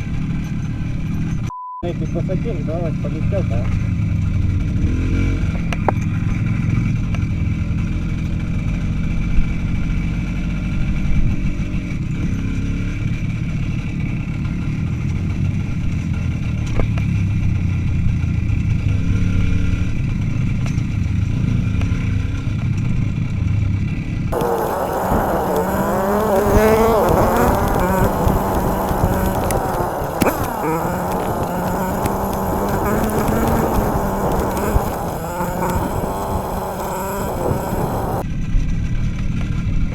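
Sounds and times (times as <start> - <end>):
motorcycle engine running: 3.0 - 38.2.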